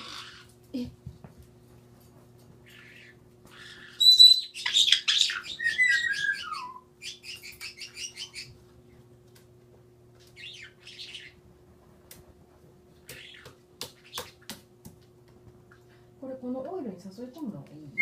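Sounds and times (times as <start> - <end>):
parrot screeching and chattering: 0.0 - 0.5, 2.6 - 8.5, 10.4 - 11.4.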